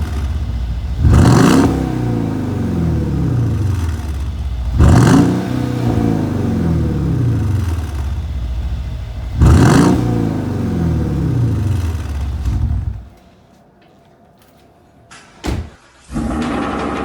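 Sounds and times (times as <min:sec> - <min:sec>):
car engine revving: 0:00.0 - 0:13.2.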